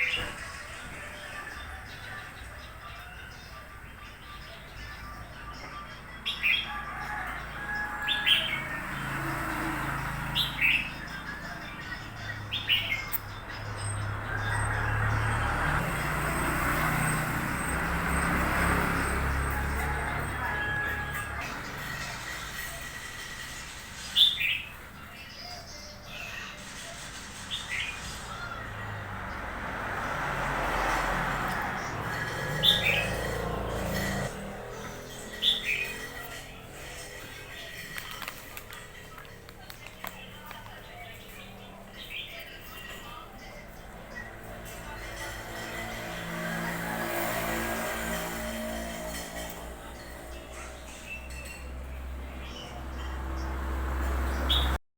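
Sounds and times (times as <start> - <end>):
bird calling bright phrases: 0.0 - 9.2, 9.8 - 15.8
broad background noise: 0.0 - 54.8.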